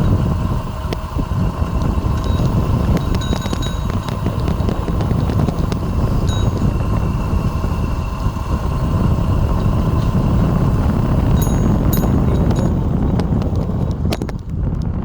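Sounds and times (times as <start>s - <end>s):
faint high whine: 0.0s - 13.0s
wind rumbling on microphone: 0.0s - 15.0s.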